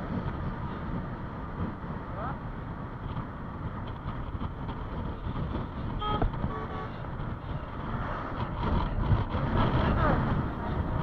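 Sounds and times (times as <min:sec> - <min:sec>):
traffic rumble: 0:00.0 - 0:11.0
vehicle horn tooting: 0:06.0 - 0:07.6.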